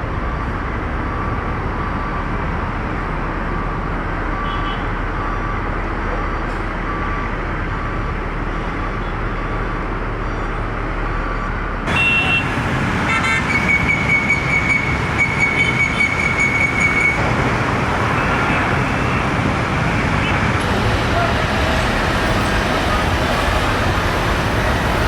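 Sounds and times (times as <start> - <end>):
engine roar: 11.9 - 25.0.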